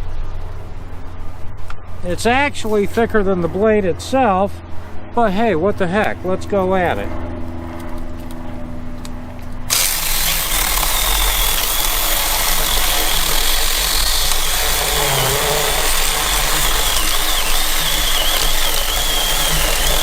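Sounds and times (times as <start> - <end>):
mini chainsaw cutting log: 9.7 - 20.0.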